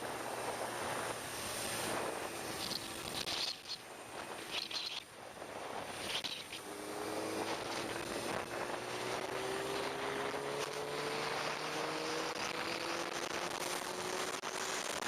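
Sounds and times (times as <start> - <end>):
wind noise: 0.0 - 15.0.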